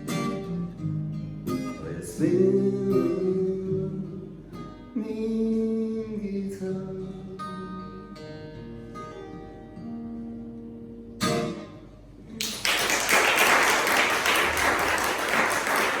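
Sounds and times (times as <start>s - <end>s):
acoustic guitar strumming: 0.0s - 12.4s
audience applause: 12.4s - 16.0s.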